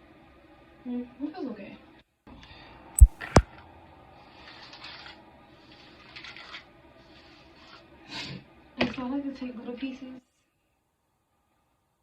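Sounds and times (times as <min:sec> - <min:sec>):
sharp clicks: 0:03.0 - 0:03.4.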